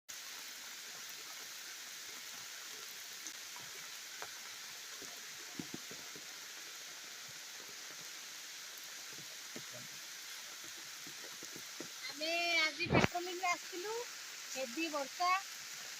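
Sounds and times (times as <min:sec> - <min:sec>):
heavy rain hissing: 0:00.1 - 0:15.9
raindrops ticking: 0:03.2 - 0:15.5.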